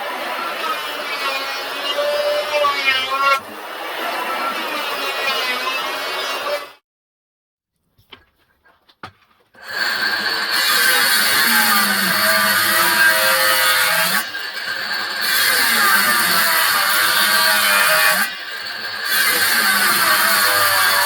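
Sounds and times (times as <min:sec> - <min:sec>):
power drill running: 0:09.6 - 0:21.0.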